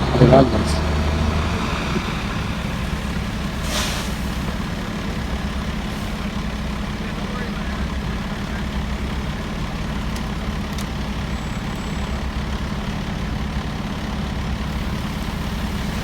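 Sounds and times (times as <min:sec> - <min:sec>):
heavy truck engine idling: 0:00.0 - 0:16.0.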